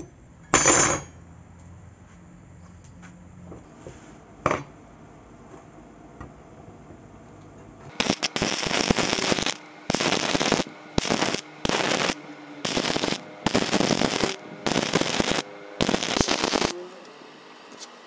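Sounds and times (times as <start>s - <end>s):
faint steady hum: 4.8s - 18.0s
arc welding crackling: 7.9s - 18.0s.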